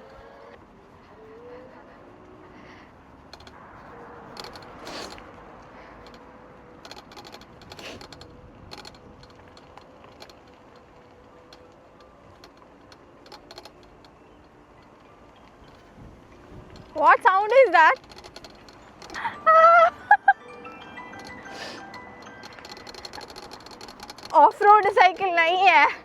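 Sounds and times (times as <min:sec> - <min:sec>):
electric bike rattling and clicking: 0:00.0 - 0:26.0.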